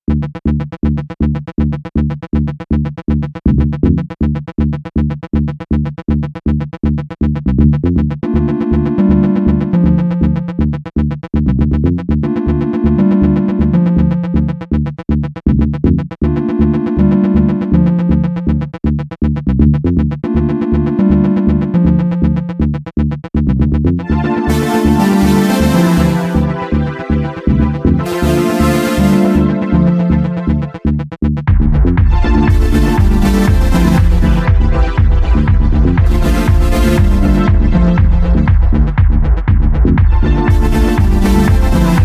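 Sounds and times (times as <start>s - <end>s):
high keyboard-like melody: 8.2s - 10.5s, 12.2s - 14.5s, 16.3s - 18.6s, 20.2s - 22.4s, 24.0s - 30.8s, 32.0s - 39.0s, 40.0s - 42.0s
repeating low synth notes: 8.2s - 10.6s, 12.2s - 14.7s, 16.2s - 18.8s, 20.1s - 22.6s, 24.0s - 42.0s.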